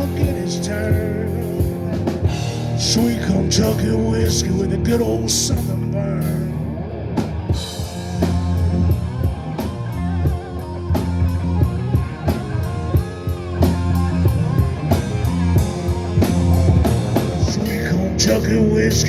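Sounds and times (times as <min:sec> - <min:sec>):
person singing: 0:00.0 - 0:06.6, 0:17.4 - 0:19.0
electric guitar: 0:00.0 - 0:19.0
steady drum beat: 0:00.0 - 0:19.0.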